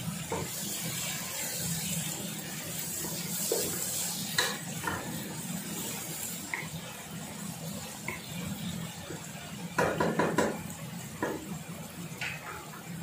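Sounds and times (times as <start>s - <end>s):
vegetables sizzling in oil: 0.0s - 13.0s
wooden spoon knocking pot: 9.8s - 10.6s.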